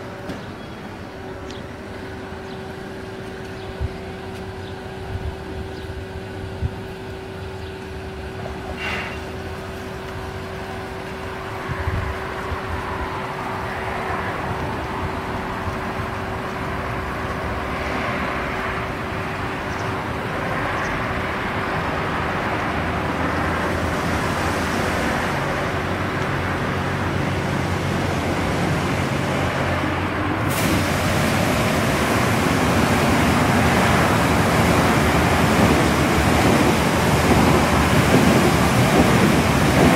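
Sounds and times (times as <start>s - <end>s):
water spray hiss: 30.4s - 39.9s.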